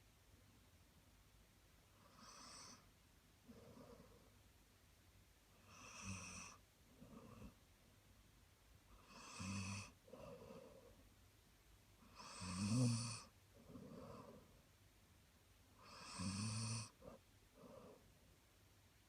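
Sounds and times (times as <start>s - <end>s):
dog snoring: 2.0s - 2.9s, 3.5s - 4.2s, 5.6s - 7.6s, 8.9s - 10.9s, 12.0s - 14.5s, 15.8s - 18.0s.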